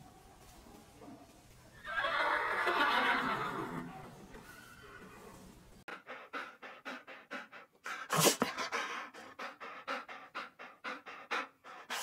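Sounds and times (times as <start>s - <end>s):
dog panting rapidly: 5.9s - 12.0s.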